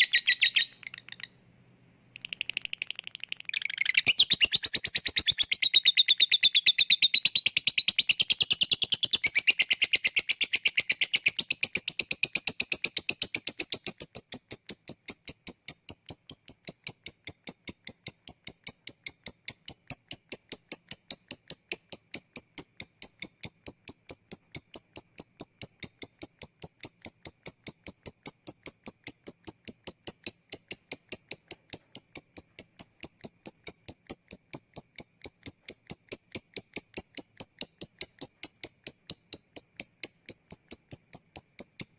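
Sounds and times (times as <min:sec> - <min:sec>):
lovebird chattering: 0:00.0 - 0:01.4, 0:02.1 - 0:41.9
lovebird short high chirps: 0:00.0 - 0:01.4, 0:02.1 - 0:41.9.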